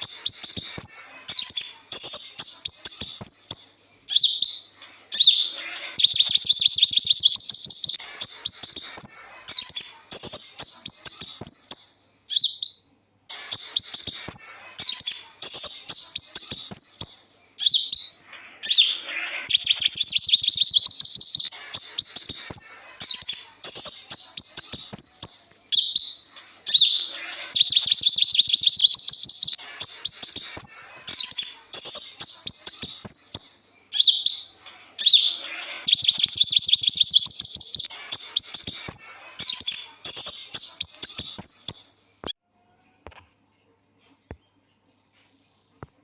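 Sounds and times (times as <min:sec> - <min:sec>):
bird twittering and trilling: 0:00.0 - 0:42.4.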